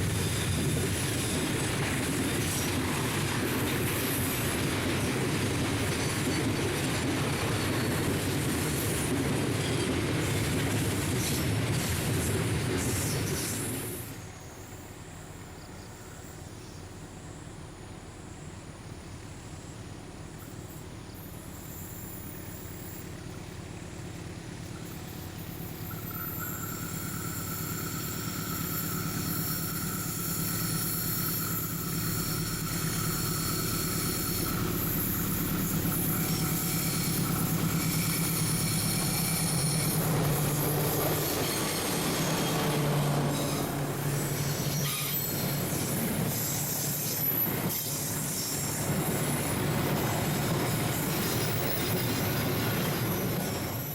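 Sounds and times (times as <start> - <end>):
diesel locomotive engine: 0.0 - 53.9
high wheel squeal: 24.8 - 53.9.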